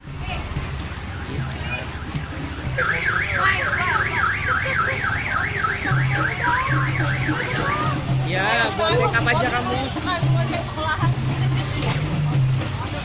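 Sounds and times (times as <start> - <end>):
electronic siren warbling: 2.0 - 8.0.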